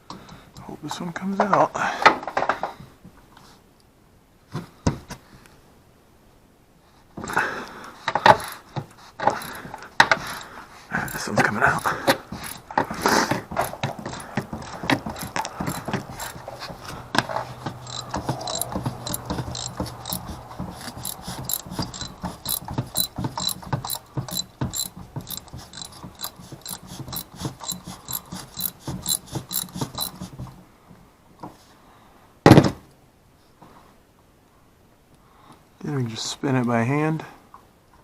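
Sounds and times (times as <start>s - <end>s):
ratchet wrench clicking: 9.2s - 9.6s, 10.3s - 12.7s, 13.6s - 16.6s, 17.3s - 30.2s.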